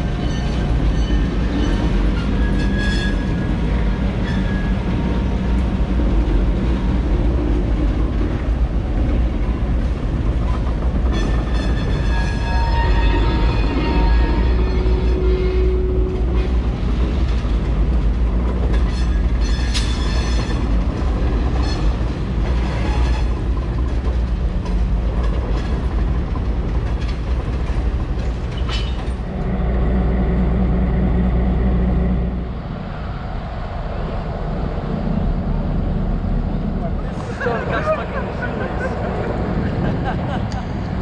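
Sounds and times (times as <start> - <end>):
wheels clicking over rail joints: 0.0 - 29.6
diesel locomotive engine: 0.0 - 41.0.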